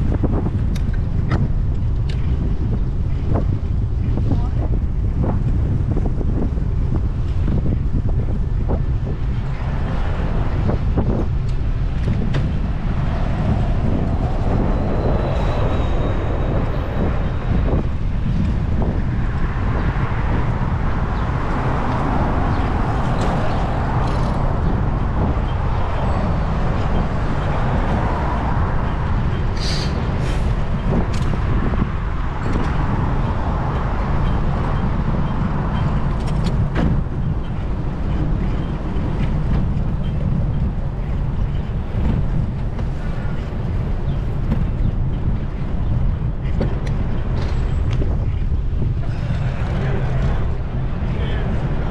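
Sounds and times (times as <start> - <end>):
city traffic passing: 0.0 - 51.9
wind buffeting microphone: 0.0 - 51.9.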